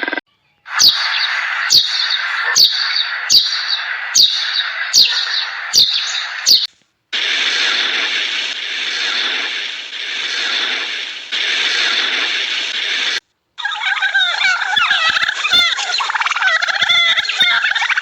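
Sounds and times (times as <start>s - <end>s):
bird chirping: 0.0s - 6.7s, 7.6s - 18.0s
steady hiss: 0.8s - 13.2s.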